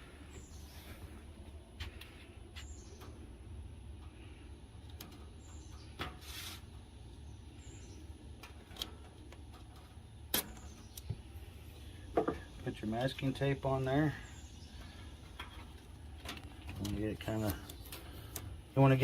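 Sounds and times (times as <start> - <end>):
low steady hum: 0.0 - 19.0
tape pulled from roll: 6.0 - 6.7.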